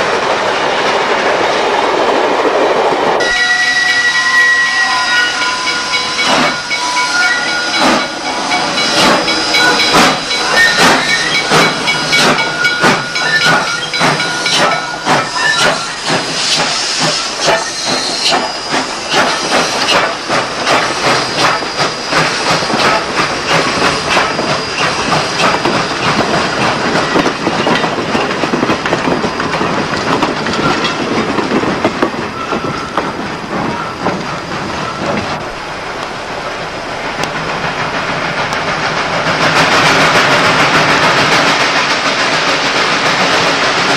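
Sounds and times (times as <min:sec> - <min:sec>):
steam locomotive chuffs: 0:02.9 - 0:43.9
steady high tones: 0:03.2 - 0:19.1
steam hiss: 0:04.7 - 0:28.2.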